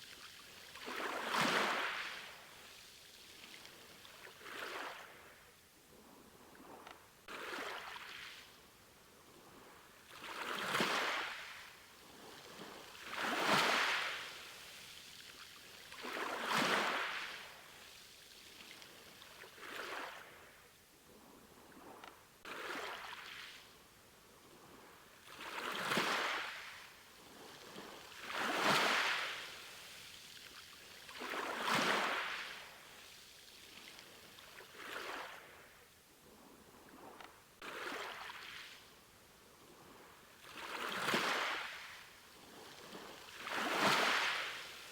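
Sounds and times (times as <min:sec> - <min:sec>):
sea waves washing in and out: 0:00.7 - 0:02.8, 0:09.9 - 0:15.0, 0:24.9 - 0:33.3, 0:39.8 - 0:44.9.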